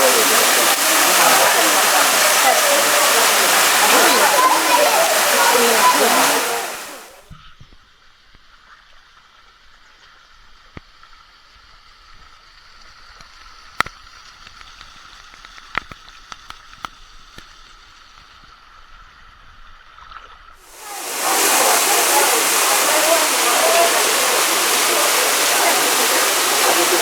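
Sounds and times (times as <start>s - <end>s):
loud rushing water: 0.0s - 7.3s, 20.6s - 27.0s
small stream flowing: 0.0s - 7.3s, 20.7s - 27.0s.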